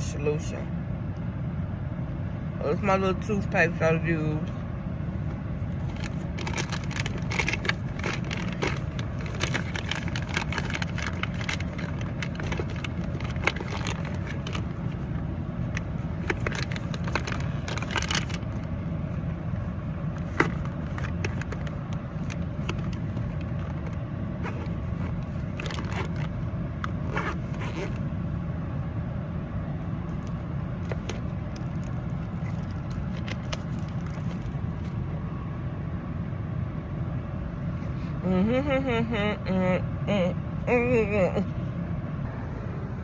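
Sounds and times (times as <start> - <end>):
low traffic rumble: 0.0 - 43.0
small objects clicking and rustling: 5.9 - 14.9.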